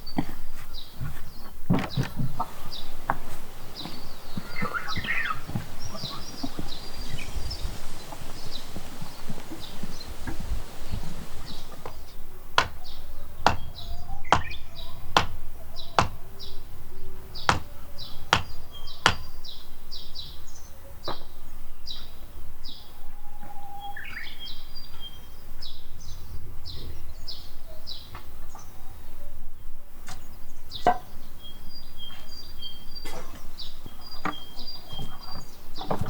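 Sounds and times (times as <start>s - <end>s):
small birds chirping: 0.0s - 36.0s
sharp chopping knocks: 12.6s - 15.4s, 16.0s - 16.2s, 17.4s - 19.4s.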